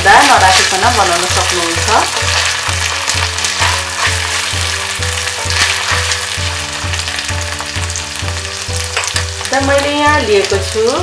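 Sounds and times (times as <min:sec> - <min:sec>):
onions sizzling in oil: 0:00.0 - 0:11.0
spatula stirring in pan: 0:00.1 - 0:08.0.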